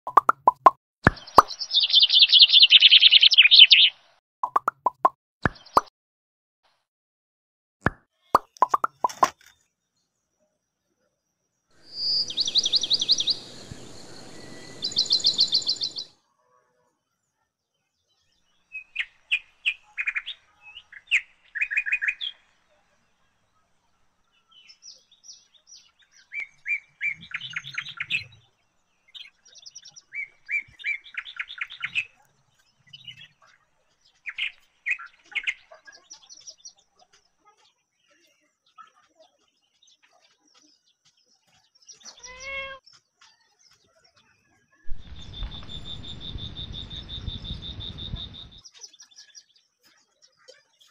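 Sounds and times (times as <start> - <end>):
small birds chirping in trills: 0.1 - 4.6, 8.3 - 16.3, 17.0 - 50.9
rushing noise: 11.8 - 16.1.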